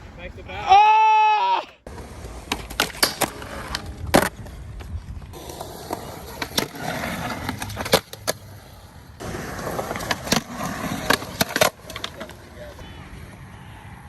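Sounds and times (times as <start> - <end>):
skateboard wheels rolling on pavement: 1.6 - 14.0
skateboard clacks: 9.2 - 12.8.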